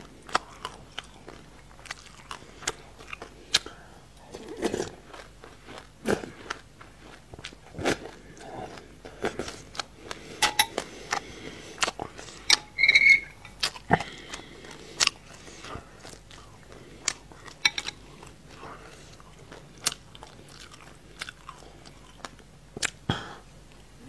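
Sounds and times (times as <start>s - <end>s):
chewing and crunching: 0.0s - 23.1s
metal spoon scraping a bowl: 12.4s - 13.6s.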